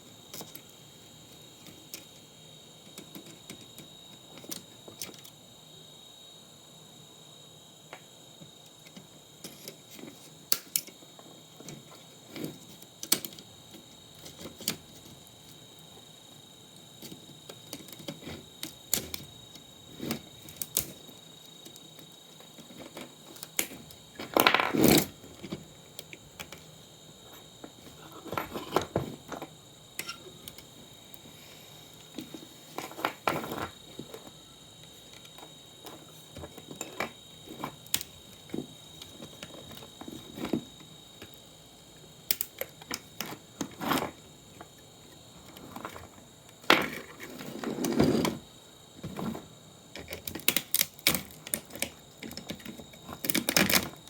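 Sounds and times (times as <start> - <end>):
parts and tools clattering: 22.5 - 25.7, 27.4 - 30.7, 32.2 - 34.4.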